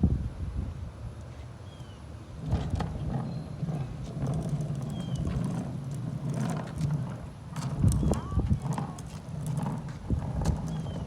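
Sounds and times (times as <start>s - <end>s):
wind buffeting microphone: 2.3s - 11.0s.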